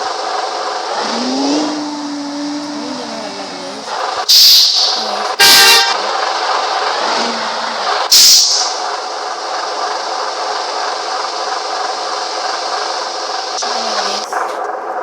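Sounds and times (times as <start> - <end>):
loud hissing bursts: 0.0 - 14.6
car road and engine noise: 0.0 - 15.0
vehicle horn honk: 5.4 - 6.0.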